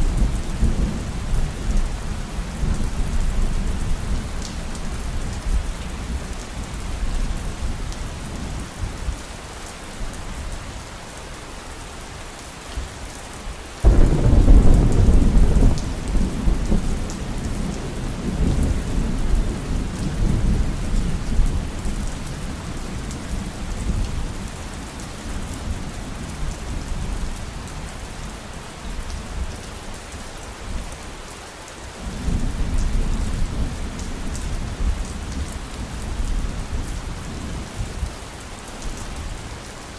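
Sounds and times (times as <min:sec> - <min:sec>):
heavy rain: 0:00.0 - 0:39.9
loud thunderclap: 0:13.8 - 0:19.0
rolling thunder: 0:13.8 - 0:22.0.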